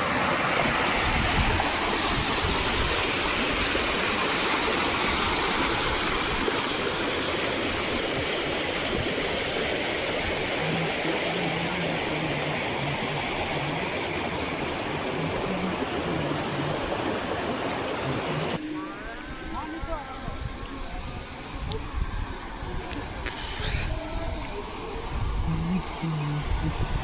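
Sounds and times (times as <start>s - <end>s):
heavy water rushing through dam: 0.0s - 18.6s.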